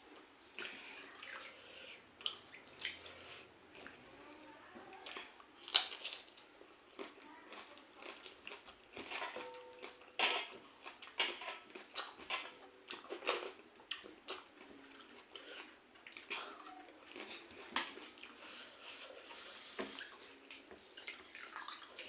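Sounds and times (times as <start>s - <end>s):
dishes clinking: 9.0s - 12.6s.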